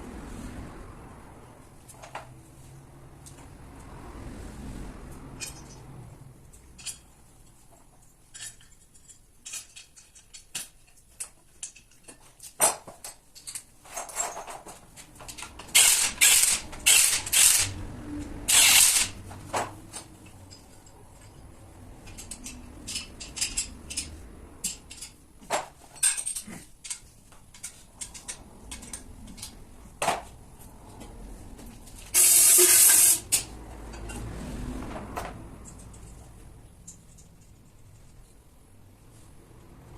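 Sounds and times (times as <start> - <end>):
metal tools clicking and knocking: 5.4 - 5.8, 6.5 - 30.3, 35.2 - 38.2
bursts of hissing: 32.2 - 33.3.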